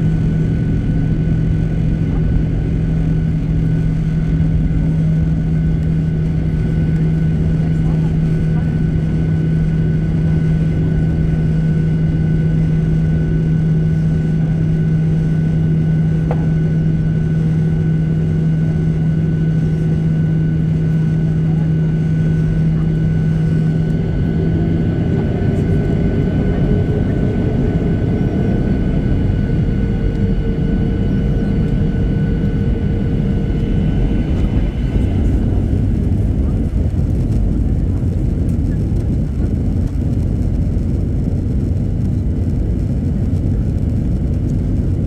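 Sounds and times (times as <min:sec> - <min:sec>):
jet engines rumbling and whining: 0:00.0 - 0:45.0
low hum: 0:00.0 - 0:45.0
rising engine tone: 0:23.7 - 0:35.9.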